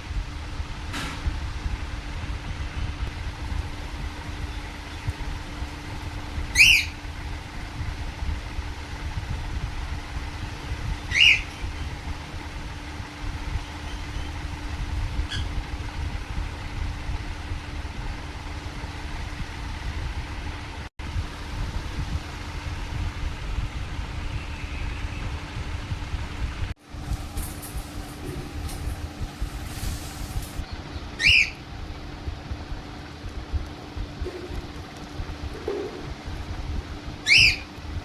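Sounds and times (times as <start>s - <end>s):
constant hum: 0.0s - 38.0s
steady low rumble: 0.0s - 38.0s
parrot squawking: 6.5s - 7.1s, 11.1s - 11.9s, 31.2s - 31.6s, 37.2s - 37.7s.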